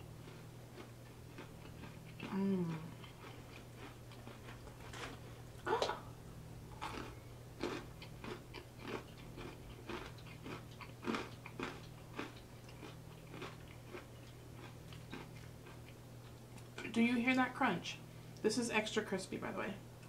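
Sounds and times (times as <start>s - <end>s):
crunching and chewing fried chicken: 0.0s - 5.4s, 6.7s - 16.8s.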